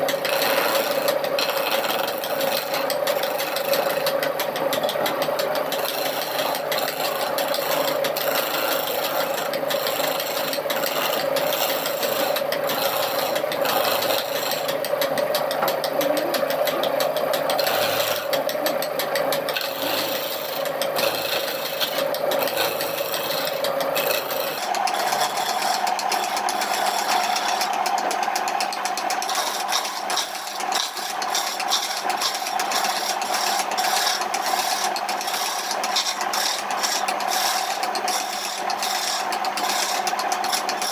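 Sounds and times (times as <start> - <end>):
rasping grinding of wood: 0.0 - 40.9
power tool motor humming: 5.6 - 28.2.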